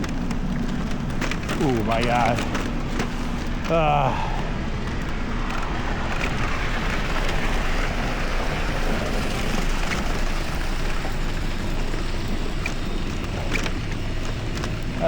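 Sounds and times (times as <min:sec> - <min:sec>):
tyres hissing on wet road: 0:05.7 - 0:15.0.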